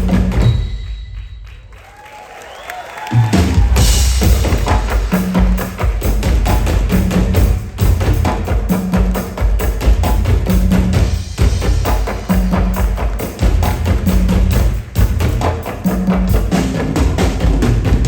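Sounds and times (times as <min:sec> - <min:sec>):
percussion-driven live music: 0:00.0 - 0:18.0.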